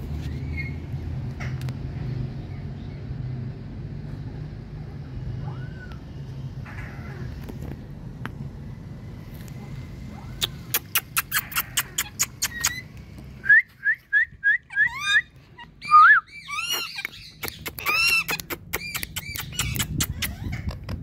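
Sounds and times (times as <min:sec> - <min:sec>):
parrot clicking chirps: 0:10.4 - 0:13.0, 0:16.5 - 0:20.5
parrot whistled calls: 0:10.7 - 0:20.4.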